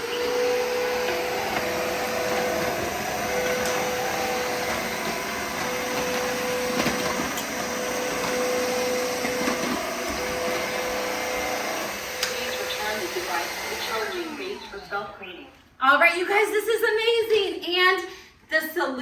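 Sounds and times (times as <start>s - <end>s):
vacuum mop motor whine: 0.0s - 15.6s.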